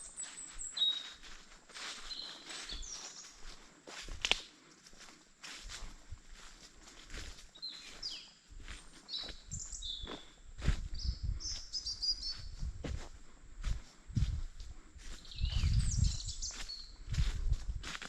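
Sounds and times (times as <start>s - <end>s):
high bird chirp: 0.0s - 3.4s, 9.0s - 10.3s, 10.9s - 12.7s, 15.2s - 17.1s
footsteps on forest floor: 0.0s - 18.0s.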